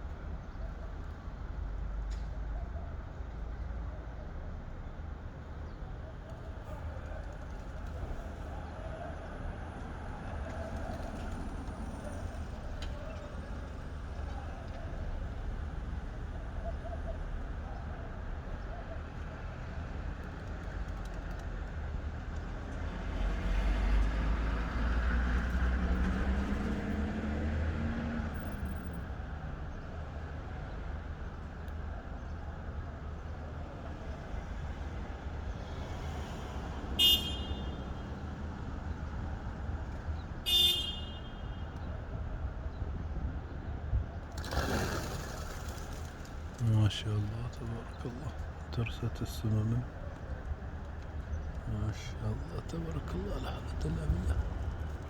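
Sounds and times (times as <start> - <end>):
traffic rumble: 0.0 - 55.0
car horn toot: 37.0 - 37.8, 40.5 - 41.7.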